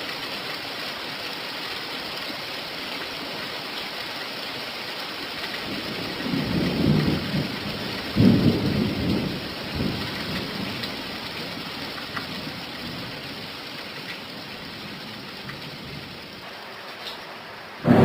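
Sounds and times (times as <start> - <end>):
steady rain falling: 0.0 - 18.0
thunder rumble: 5.6 - 11.6, 17.7 - 18.0.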